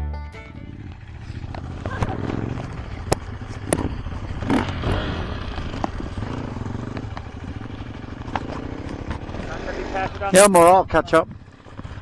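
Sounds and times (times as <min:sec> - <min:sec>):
dirt bike engine running: 0:00.0 - 0:12.0
sharp clicks and knocks: 0:01.5 - 0:05.1.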